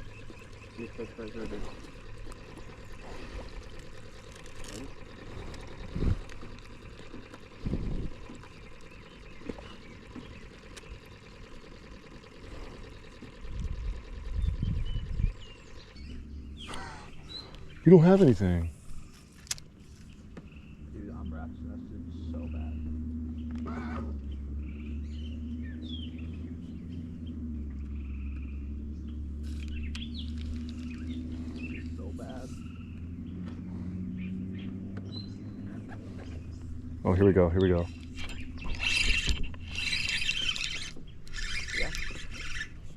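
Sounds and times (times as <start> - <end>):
water trickling and lapping: 0.0 - 14.3
small birds chirping: 0.0 - 42.9
steady low hum: 0.0 - 42.9.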